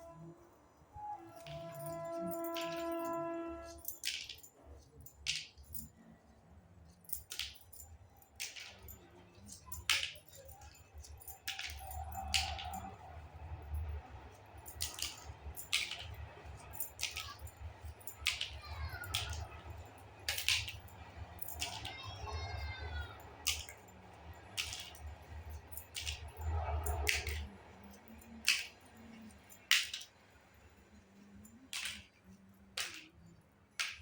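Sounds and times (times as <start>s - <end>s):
plastic toy pieces clicking: 24.5s - 25.0s, 29.6s - 30.2s, 31.7s - 33.2s.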